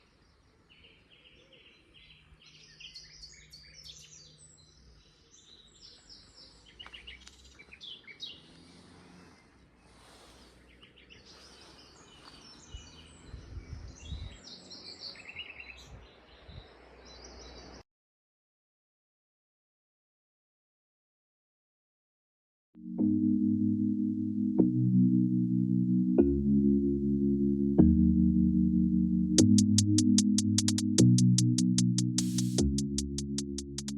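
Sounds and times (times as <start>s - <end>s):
nightingale singing: 0.8s - 17.8s
low thumps: 29.4s - 33.9s.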